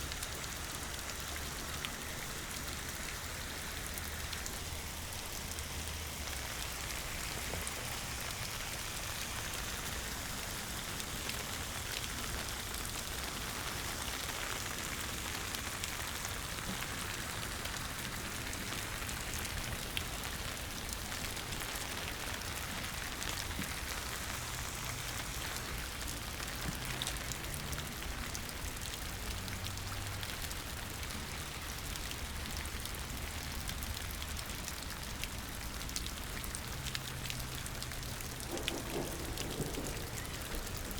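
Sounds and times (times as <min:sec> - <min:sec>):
rain falling and splashing: 0:00.0 - 0:40.9
raindrop ticks: 0:11.0 - 0:40.9.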